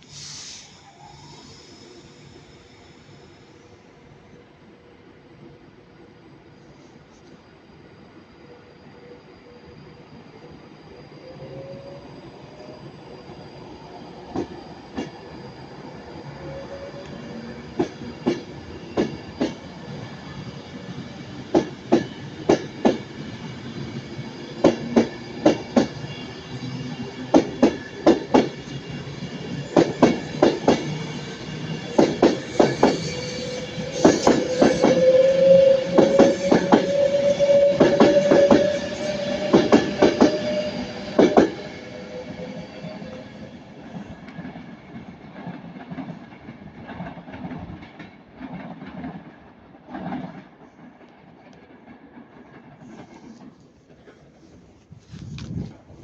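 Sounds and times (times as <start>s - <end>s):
train wheels clicking over rail joints: 21.2s - 41.9s.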